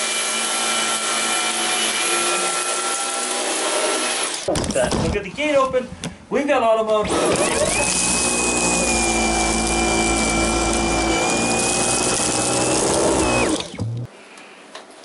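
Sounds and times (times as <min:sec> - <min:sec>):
vacuum cleaner running: 0:07.1 - 0:14.1.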